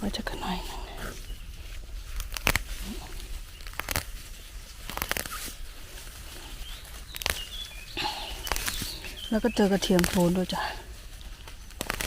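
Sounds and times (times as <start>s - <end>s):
low steady rumble: 0.0s - 12.0s
plant stems snapping: 2.1s - 5.6s, 6.8s - 10.5s, 11.2s - 12.0s.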